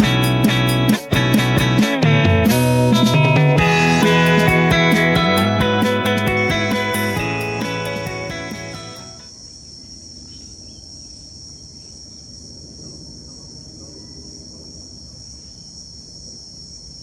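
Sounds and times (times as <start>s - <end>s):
guitar music: 0.0s - 9.3s
insects droning: 3.6s - 17.0s.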